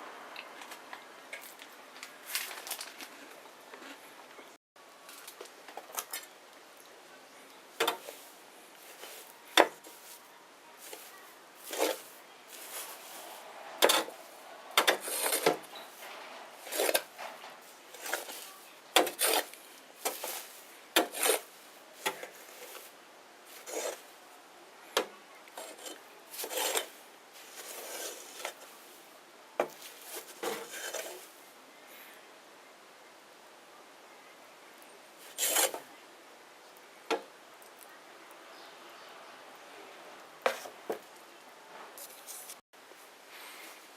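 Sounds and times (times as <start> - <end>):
wood bonfire crackling: 0.3 - 3.7
faint hiss: 41.7 - 43.9.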